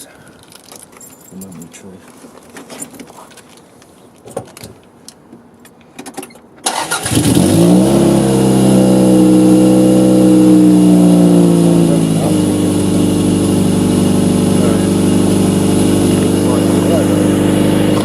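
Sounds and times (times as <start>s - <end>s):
car engine cranking and idling: 6.6s - 18.0s.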